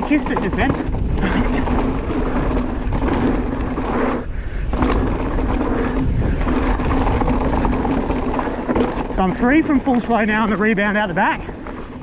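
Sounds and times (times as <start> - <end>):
bike rattling over bumps: 0.0 - 12.0
rumble of wind and tyres: 0.0 - 12.0.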